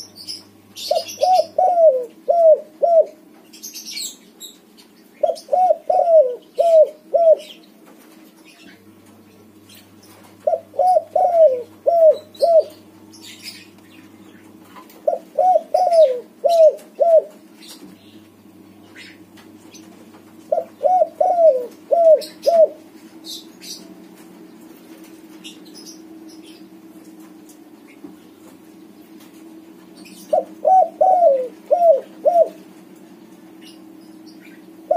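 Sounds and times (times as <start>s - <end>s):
small birds chirping: 0.0s - 34.9s
steady low hum: 0.0s - 34.9s
dove cooing: 0.8s - 3.3s, 5.2s - 7.6s, 10.3s - 13.7s, 14.5s - 17.8s, 19.8s - 23.8s, 30.0s - 32.7s.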